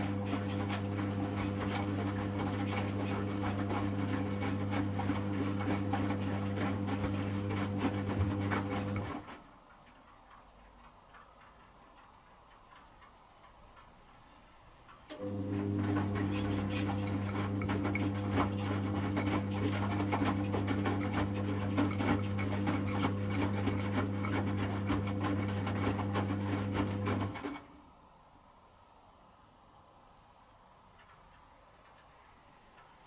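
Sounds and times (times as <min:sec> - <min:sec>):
washing machine motor hum: 0:00.0 - 0:09.7, 0:15.1 - 0:27.7
clicks of tumbling laundry: 0:00.0 - 0:27.8.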